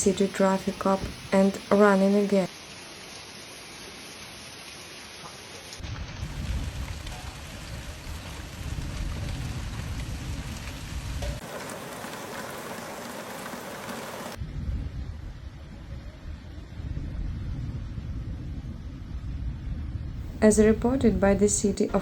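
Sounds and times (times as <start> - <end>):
heavy rain pouring: 0.0 - 14.4
deep rumble: 5.8 - 11.4, 14.4 - 21.7.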